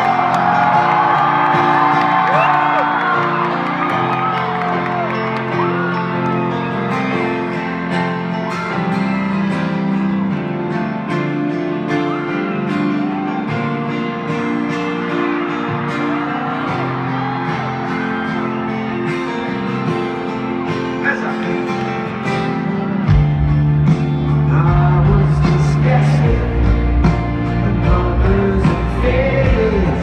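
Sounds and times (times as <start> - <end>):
strummed acoustic guitar: 5.2 - 30.0
live band music: 18.9 - 30.0.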